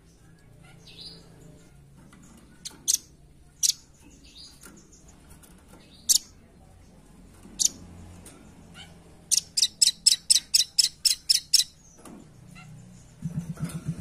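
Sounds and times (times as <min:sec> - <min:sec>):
nuthatch chipping calls: 0:09.3 - 0:11.8
low buzzing rattle: 0:12.9 - 0:14.0.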